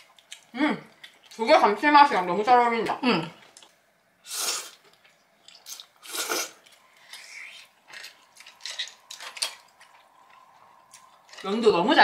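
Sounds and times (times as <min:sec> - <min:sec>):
chewing and biting: 0:04.8 - 0:11.5.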